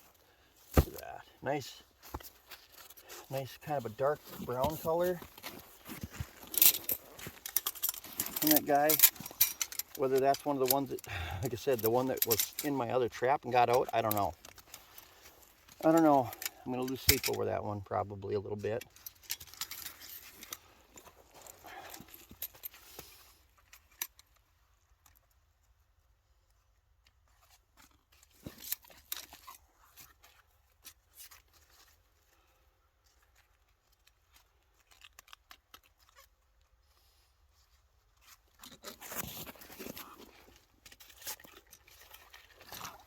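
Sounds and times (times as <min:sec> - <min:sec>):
metal gear clicking and rattling: 0:06.5 - 0:11.1.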